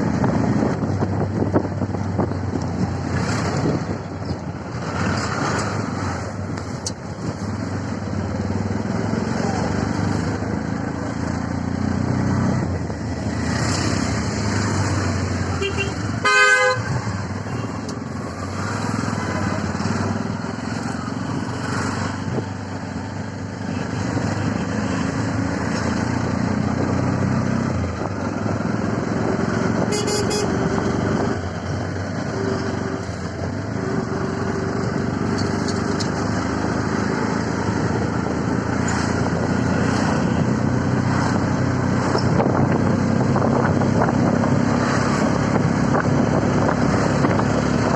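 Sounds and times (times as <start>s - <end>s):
engine and road noise: 0.0s - 47.9s
vehicle horn honking: 15.6s - 17.7s, 29.9s - 30.6s
short high horn toot: 29.9s - 30.5s.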